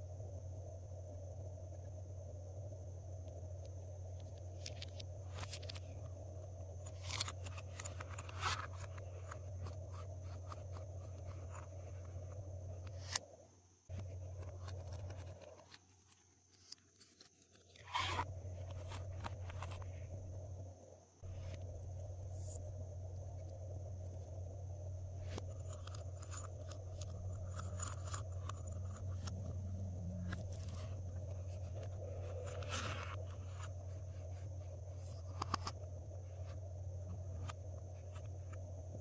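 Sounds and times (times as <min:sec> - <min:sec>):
electrical hum: 0:00.0 - 0:39.0.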